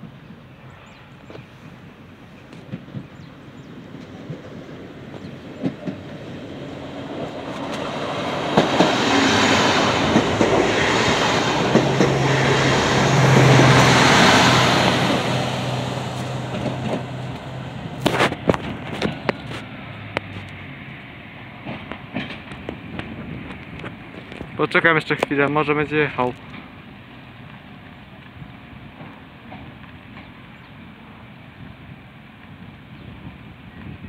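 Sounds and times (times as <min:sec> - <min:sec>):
train rumble: 0:00.0 - 0:34.0
wheels clicking over rail joints: 0:02.4 - 0:30.8
low diesel engine hum: 0:04.9 - 0:24.6.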